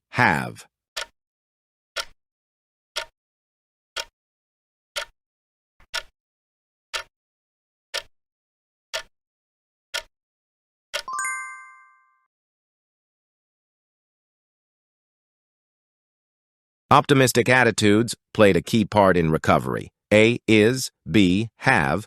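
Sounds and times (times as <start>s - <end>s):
timer ticking: 2.0s - 2.2s, 3.0s - 3.2s, 5.0s - 5.2s, 6.9s - 7.1s, 8.9s - 9.1s
bright chime: 11.1s - 12.3s.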